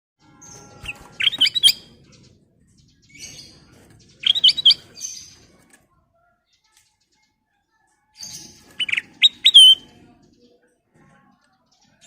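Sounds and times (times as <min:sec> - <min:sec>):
bird whistled song: 0:00.5 - 0:01.9, 0:04.2 - 0:05.3, 0:08.3 - 0:10.0
bird chattering calls: 0:00.8 - 0:01.8, 0:04.2 - 0:05.2, 0:08.8 - 0:09.9.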